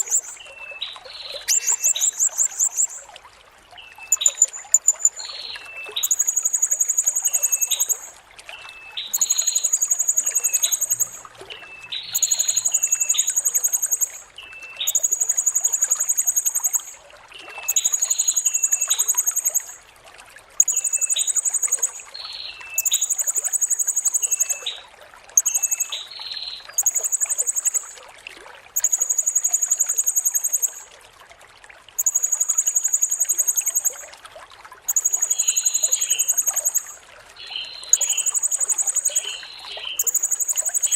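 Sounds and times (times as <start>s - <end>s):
short lower chirps: 0.0s - 0.4s, 1.4s - 3.1s, 4.1s - 5.3s, 5.9s - 8.2s, 26.8s - 28.0s, 28.8s - 30.9s
trickling water: 0.0s - 40.9s
parrot shrill trilling: 1.5s - 3.0s.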